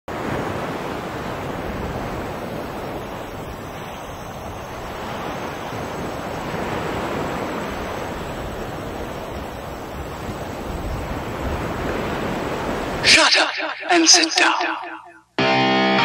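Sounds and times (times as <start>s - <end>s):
ocean waves washing: 0.1s - 15.0s.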